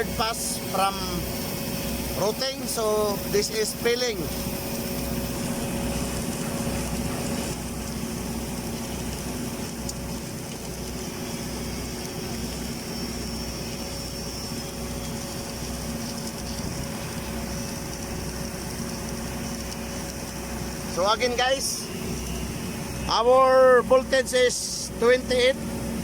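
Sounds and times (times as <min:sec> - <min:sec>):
constant hum: 0:00.0 - 0:26.0
machinery drone: 0:00.0 - 0:26.0.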